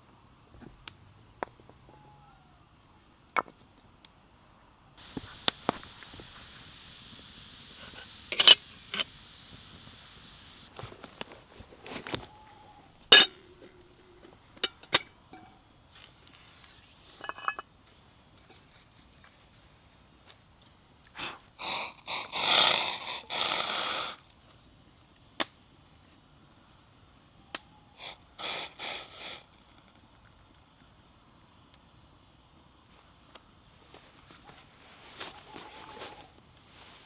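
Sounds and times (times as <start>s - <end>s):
sharp pops and cracks: 5.0s - 11.4s
campfire crackling: 5.0s - 12.3s, 12.9s - 26.1s, 27.0s - 37.0s.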